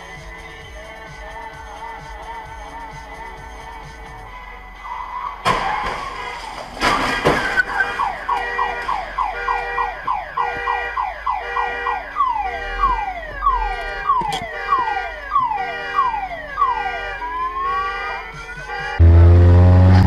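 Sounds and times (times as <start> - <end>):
car alarm cycling tones: 7.6 - 19.6.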